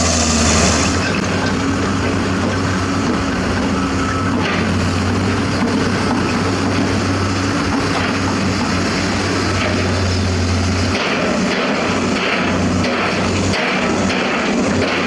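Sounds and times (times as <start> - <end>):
diesel construction machinery running: 0.0 - 15.0.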